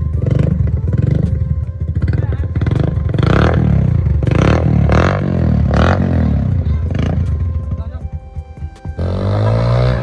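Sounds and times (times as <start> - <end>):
motorcycle engine revving: 0.0 - 8.0, 8.9 - 10.0.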